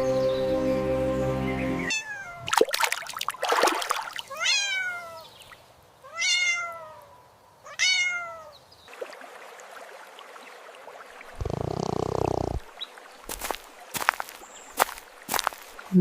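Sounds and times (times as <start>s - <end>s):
cat meowing: 1.9s - 2.5s, 4.3s - 5.2s, 6.1s - 8.5s.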